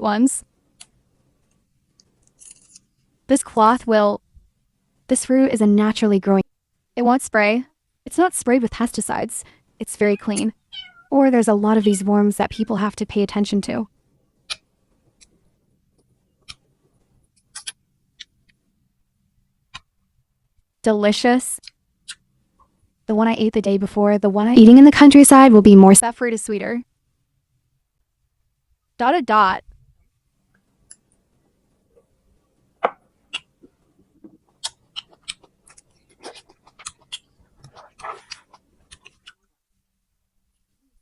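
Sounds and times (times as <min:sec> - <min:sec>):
chewing and mouth sounds: 0:34.5 - 0:39.4.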